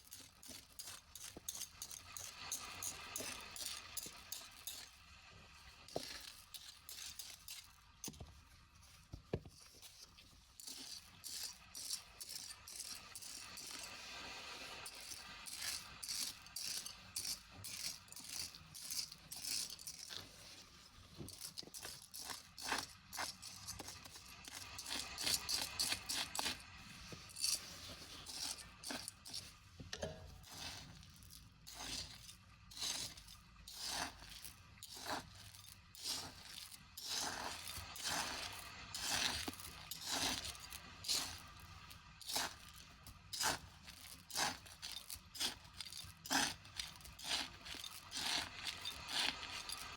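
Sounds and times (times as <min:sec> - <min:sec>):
small hard pieces rattling: 0:00.0 - 0:05.0, 0:14.7 - 0:26.6, 0:27.2 - 0:49.9.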